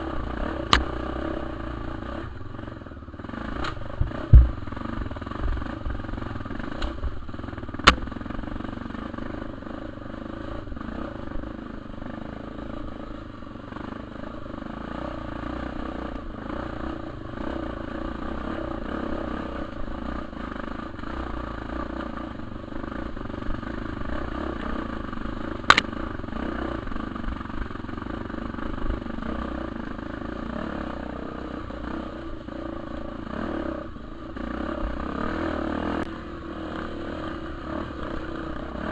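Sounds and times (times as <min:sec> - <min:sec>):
motorcycle engine running: 0:00.0 - 0:38.9
sharp knocks: 0:03.6 - 0:04.8.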